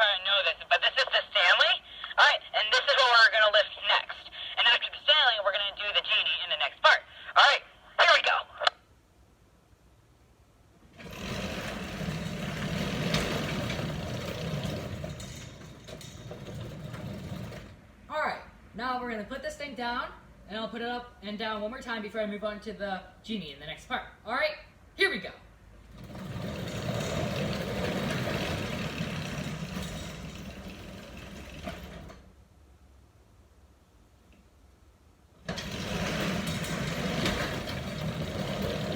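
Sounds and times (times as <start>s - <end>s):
garage door rolling up tracks: 10.8s - 18.1s, 25.7s - 32.4s, 35.4s - 38.9s.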